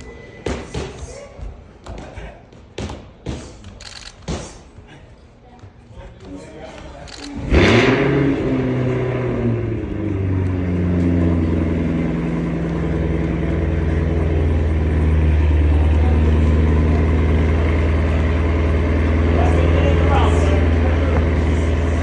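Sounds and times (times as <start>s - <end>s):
engine starting and running: 7.1s - 22.0s.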